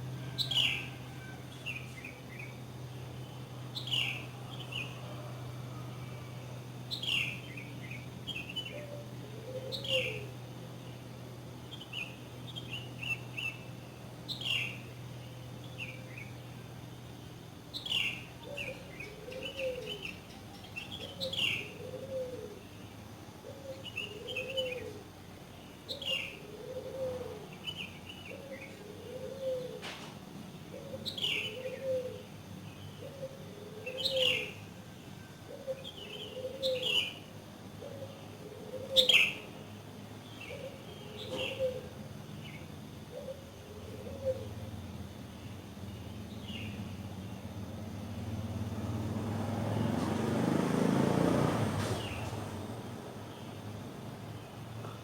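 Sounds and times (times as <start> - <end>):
low repeated bird call: 0.0 - 11.0, 17.7 - 30.0, 30.7 - 48.2
birds chirping and twittering: 0.0 - 50.0.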